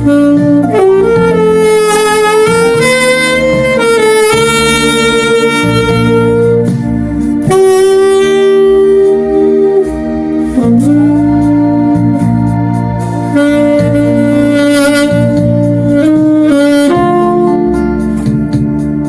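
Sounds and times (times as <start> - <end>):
alto saxophone melody: 0.0 - 19.0
backing accompaniment: 0.0 - 19.0.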